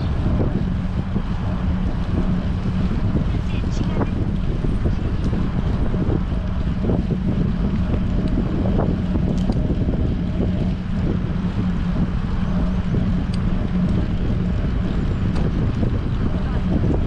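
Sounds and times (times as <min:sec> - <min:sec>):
low hum: 0:00.0 - 0:17.0
wind buffeting microphone: 0:00.0 - 0:17.0
faint ticks: 0:09.3 - 0:09.7.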